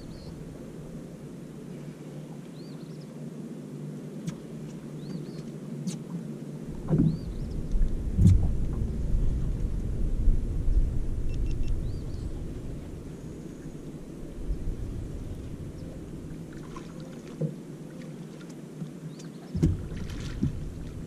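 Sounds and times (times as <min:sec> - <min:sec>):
wind buffeting microphone: 0:06.6 - 0:17.0, 0:19.6 - 0:21.0.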